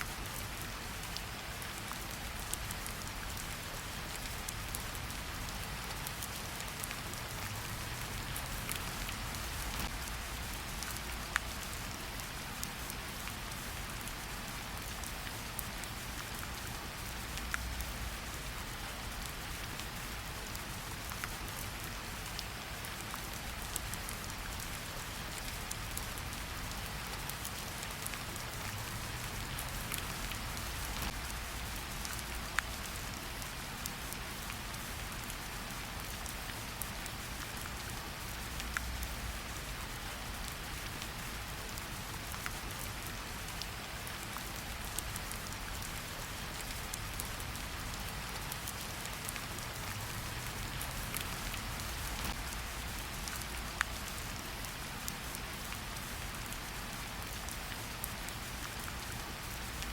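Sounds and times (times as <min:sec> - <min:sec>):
raindrops tapping close by: 0:04.2 - 0:12.2, 0:16.9 - 0:34.8, 0:41.9 - 0:56.6
rain hissing: 0:21.6 - 0:57.6.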